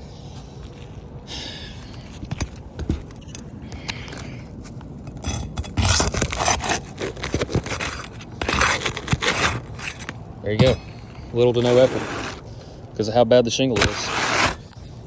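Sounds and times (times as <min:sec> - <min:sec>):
shingle bar scraping: 0:05.2 - 0:12.8, 0:13.5 - 0:15.0.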